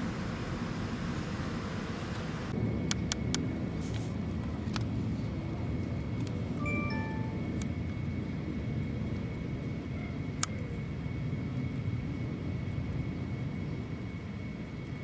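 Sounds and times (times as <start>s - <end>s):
low outdoor rumble: 0.0s - 15.0s
faint high tone: 6.6s - 7.6s.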